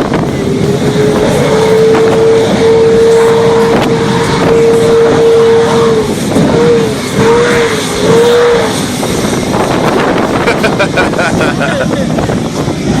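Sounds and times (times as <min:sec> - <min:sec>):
aircraft engine whine and rumble: 0:00.0 - 0:13.0.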